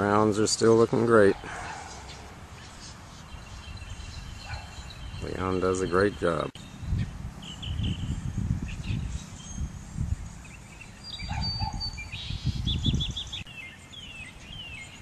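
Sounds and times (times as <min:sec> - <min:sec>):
songbirds chirping: 0:00.0 - 0:15.0
low rumble on microphone: 0:06.6 - 0:13.5.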